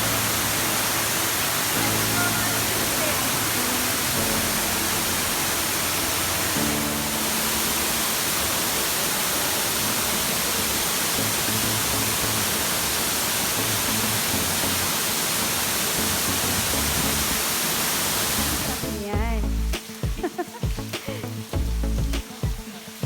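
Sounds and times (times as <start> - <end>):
low background music: 0.0 - 8.6, 18.4 - 23.0
waterfall roaring: 0.0 - 23.0.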